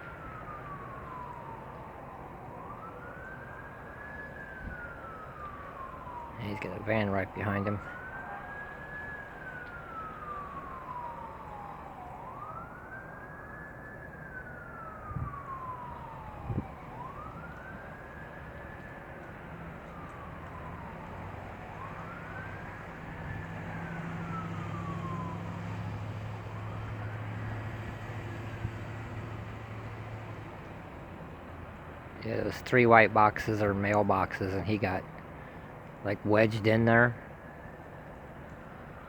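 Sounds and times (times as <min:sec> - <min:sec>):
siren wailing: 0:00.0 - 0:39.0
low engine hum: 0:14.3 - 0:39.0.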